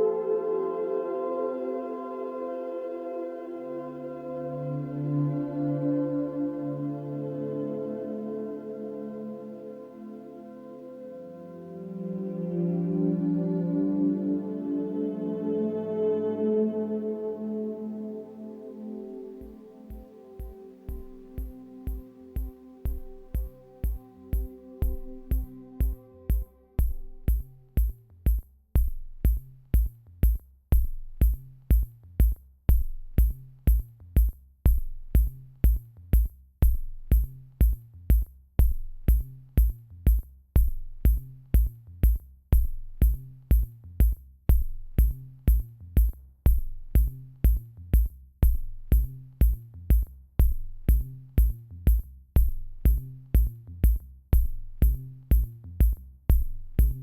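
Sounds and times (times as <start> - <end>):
low repeating bass line: 13.5 - 57.0
drum machine beat: 19.4 - 57.0.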